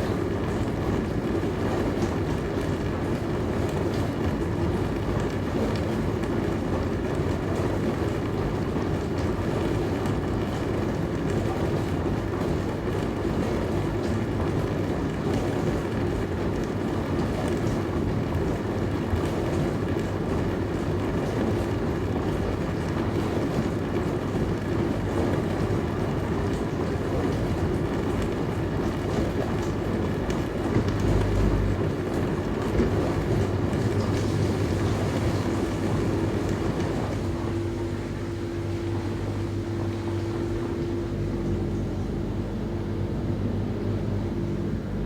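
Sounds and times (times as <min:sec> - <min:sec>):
pump motor hum: 0:00.0 - 0:45.0
dishwasher water spraying: 0:30.6 - 0:38.2.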